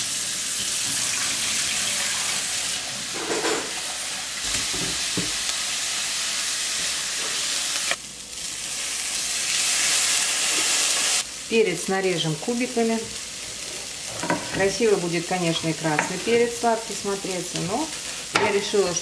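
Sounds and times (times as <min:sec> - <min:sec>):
tap water running: 0:00.0 - 0:05.4
onion sizzling in a pan: 0:00.0 - 0:19.0.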